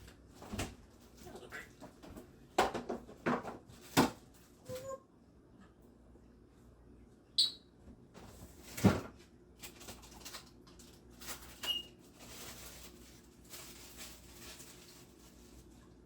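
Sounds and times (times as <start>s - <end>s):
bird chirp: 7.4s - 7.6s.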